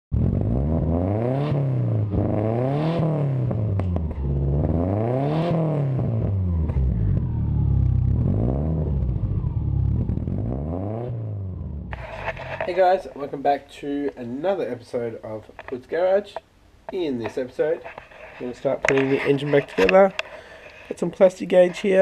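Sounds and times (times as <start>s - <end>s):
car engine revving: 0.2s - 12.7s.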